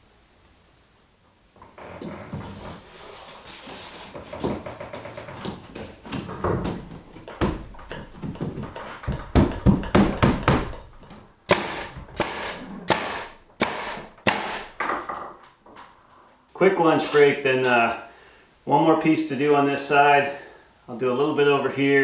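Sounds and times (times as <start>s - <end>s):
knocking on wooden boards: 4.1s - 15.8s
sharp hammer blows: 11.5s - 14.8s.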